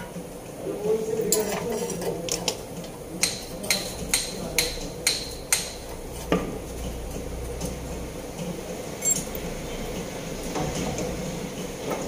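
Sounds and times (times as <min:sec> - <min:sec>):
ringing metallic taps: 0:09.0 - 0:09.4
low steady hum: 0:09.0 - 0:10.0.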